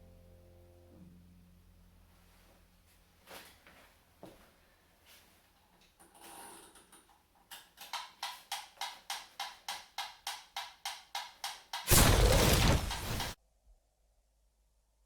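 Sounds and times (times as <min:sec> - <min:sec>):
loud burst of noise: 0:11.9 - 0:13.4.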